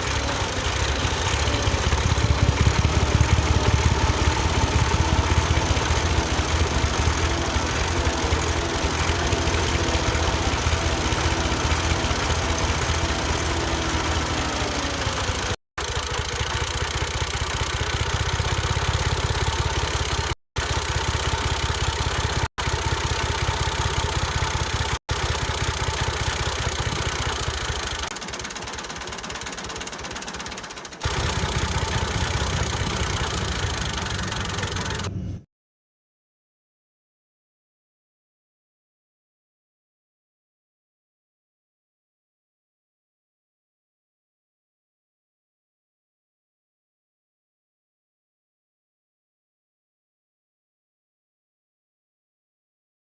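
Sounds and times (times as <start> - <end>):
small motor rattling drone: 0.0 - 35.4.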